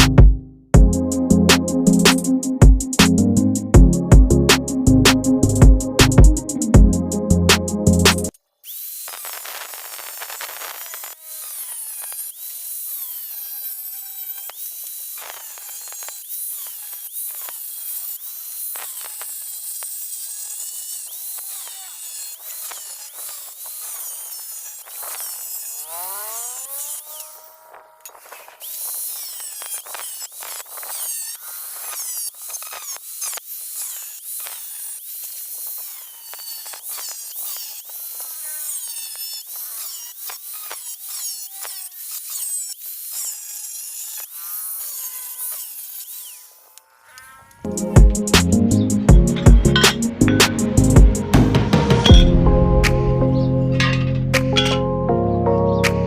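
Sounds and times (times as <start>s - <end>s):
electric drill driving auger: 8.3s - 52.3s
auger scraping and clicking: 24.8s - 31.0s, 49.3s - 51.0s, 53.8s - 54.9s.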